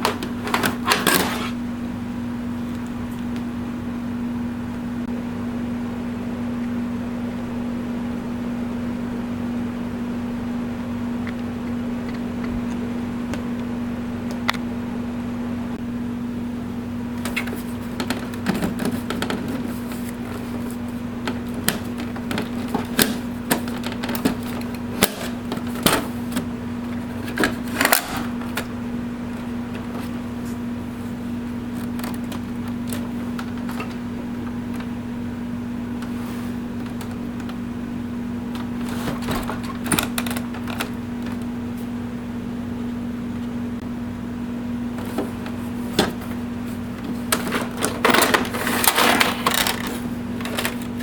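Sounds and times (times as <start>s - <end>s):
printer parts clicking and knocking: 0.0s - 1.4s, 17.2s - 28.7s, 31.8s - 34.0s, 38.5s - 41.4s, 47.0s - 51.0s
steady low hum: 0.0s - 51.0s.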